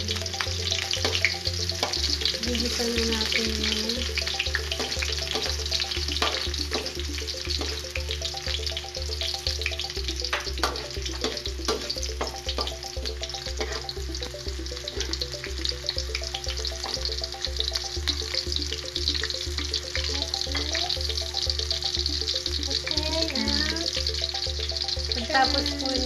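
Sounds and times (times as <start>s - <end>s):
background music with low beat: 0.0s - 26.0s
onion and garlic sizzling in oil: 0.0s - 26.0s
spatula scraping a wok: 13.6s - 13.9s.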